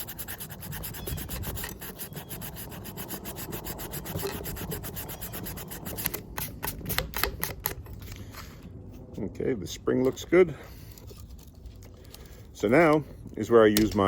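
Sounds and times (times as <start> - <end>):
scrubbing on metal: 0.0 - 6.2.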